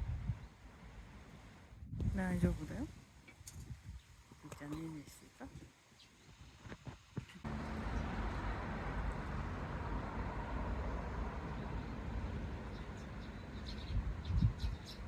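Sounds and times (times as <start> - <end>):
wind gust on microphone: 0.0 - 0.5, 1.8 - 5.7, 13.6 - 15.0.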